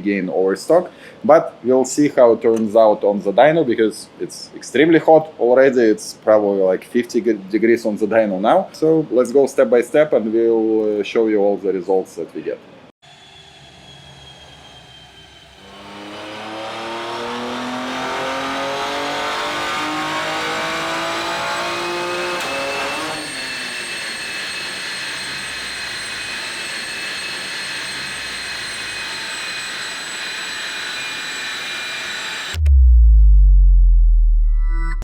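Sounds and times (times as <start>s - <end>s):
high whine coasting down: 13.1s - 35.0s
car engine revving at full throttle: 15.6s - 24.1s, 30.6s - 33.0s.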